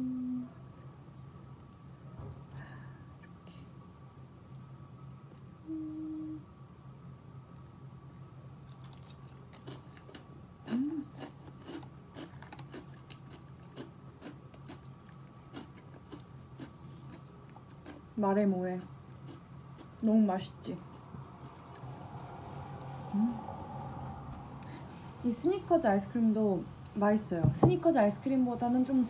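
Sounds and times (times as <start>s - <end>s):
person humming: 0.0s - 0.6s, 5.6s - 6.5s, 23.1s - 23.6s
crunching crisp biscuit: 8.7s - 18.1s.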